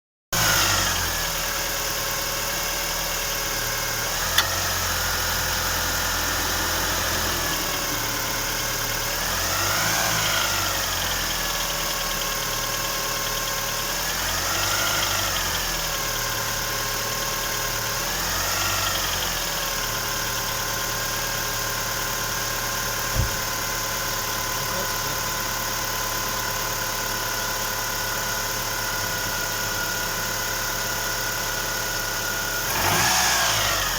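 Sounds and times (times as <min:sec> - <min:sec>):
engine revving: 0:00.4 - 0:01.4, 0:04.0 - 0:11.8, 0:13.9 - 0:16.0, 0:32.6 - 0:33.9
car engine idling: 0:01.2 - 0:32.9.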